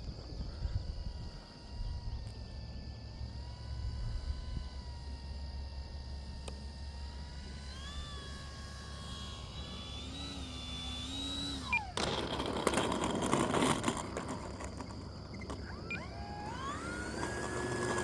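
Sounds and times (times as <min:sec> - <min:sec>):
model plane motor whining: 0:00.0 - 0:18.0
model plane rattling on road: 0:07.8 - 0:18.0.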